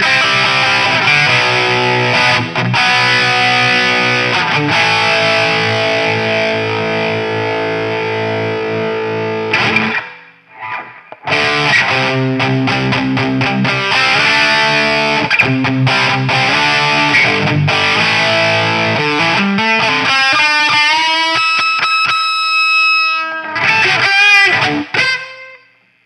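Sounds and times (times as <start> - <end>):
distorted electric guitar: 0.0 - 26.0.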